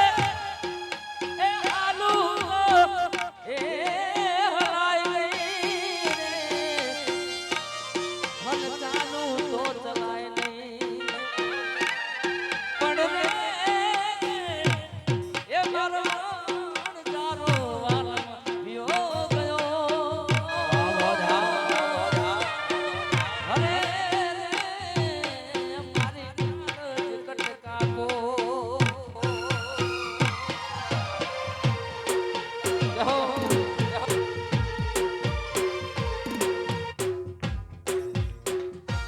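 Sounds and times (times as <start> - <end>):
hand drum beats: 7.5 - 39.0
ornamented lead melody: 29.4 - 39.0.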